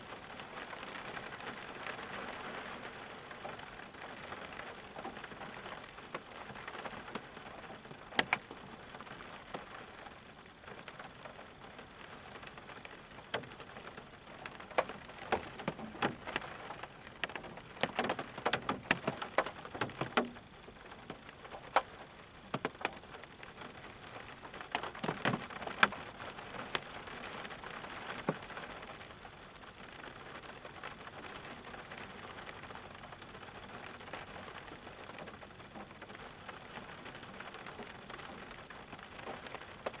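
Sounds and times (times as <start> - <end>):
rain falling: 0.0 - 40.0
raindrops striking close by: 0.0 - 40.0.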